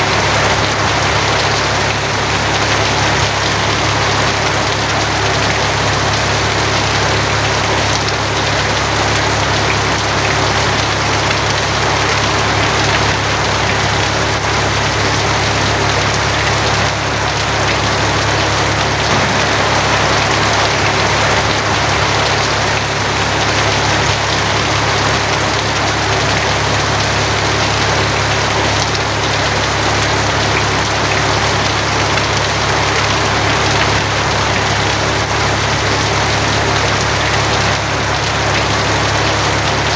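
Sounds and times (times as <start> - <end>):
heavy rain on a tin roof: 0.0 - 39.9
low hum: 17.2 - 24.4.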